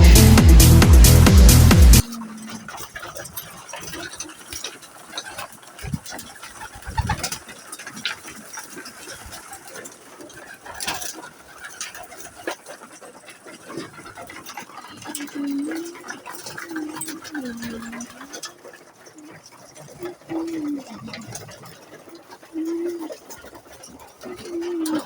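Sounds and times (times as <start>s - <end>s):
electronic music: 0.0s - 2.0s
pigeons cooing: 0.0s - 25.0s
small clicks and rustles: 2.0s - 25.0s.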